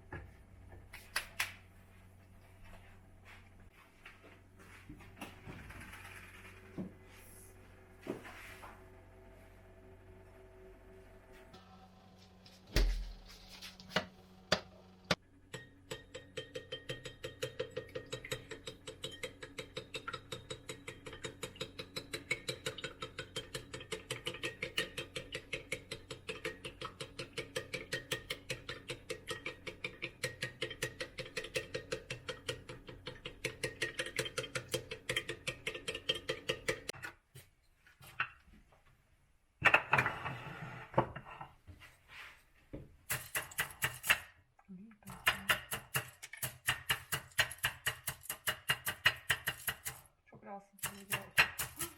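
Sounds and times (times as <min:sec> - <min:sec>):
steady hum: 0:00.0 - 0:15.6.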